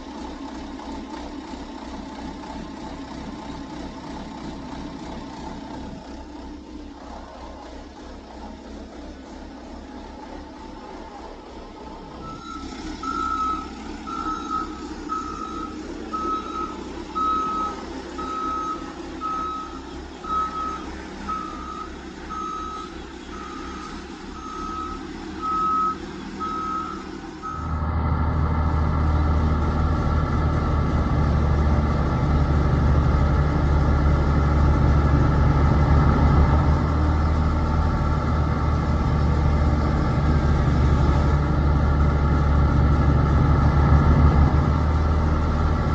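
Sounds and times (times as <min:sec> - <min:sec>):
low engine hum: 0:00.0 - 0:45.9
steady engine sound: 0:00.0 - 0:45.9
reversing beeper: 0:12.2 - 0:27.9.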